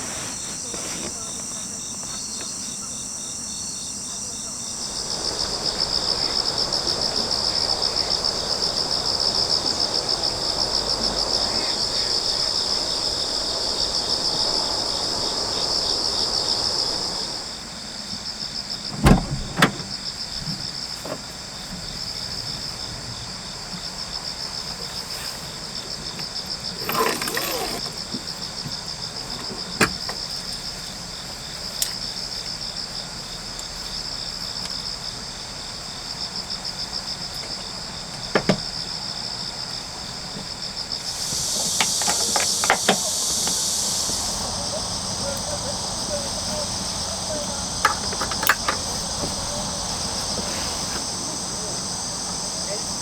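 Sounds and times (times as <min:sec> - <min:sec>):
short rustle: 0:00.0 - 0:02.3, 0:41.1 - 0:51.8
crickets chirring: 0:00.0 - 0:53.0
broad rushing noise: 0:04.2 - 0:17.6, 0:41.0 - 0:53.0.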